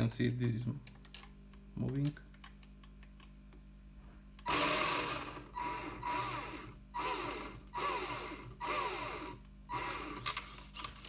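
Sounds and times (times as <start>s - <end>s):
electric motor whine: 4.5s - 11.0s.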